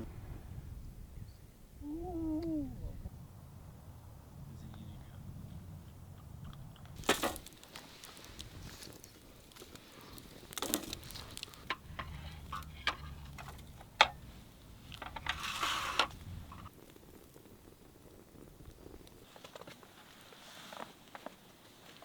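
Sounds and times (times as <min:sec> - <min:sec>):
rustles: 0:02.0 - 0:22.0
clicks and knocks of handling: 0:06.5 - 0:14.3, 0:14.9 - 0:16.7.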